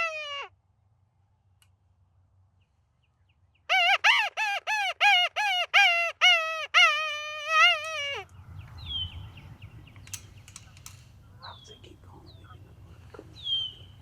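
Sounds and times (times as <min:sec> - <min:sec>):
predator call distress cries: 0:00.0 - 0:00.5, 0:03.7 - 0:08.3.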